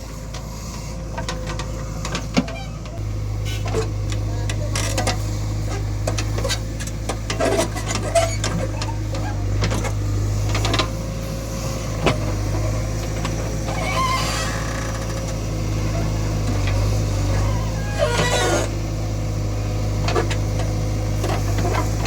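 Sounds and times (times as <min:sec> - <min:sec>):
heavy diesel engine running: 0:00.0 - 0:22.0
knocks and clanks: 0:01.1 - 0:03.0.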